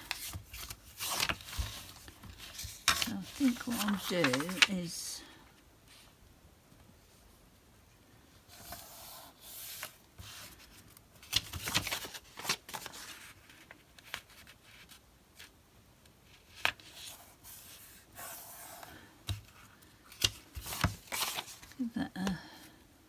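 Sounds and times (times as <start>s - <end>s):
paper rustling and tearing: 0.1s - 5.1s, 20.3s - 21.8s.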